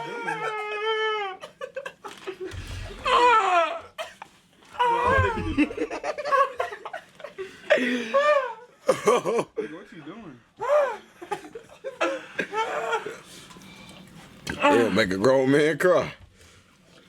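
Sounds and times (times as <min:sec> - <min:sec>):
young men laughing: 0:00.0 - 0:03.9, 0:04.8 - 0:09.9, 0:10.7 - 0:13.2.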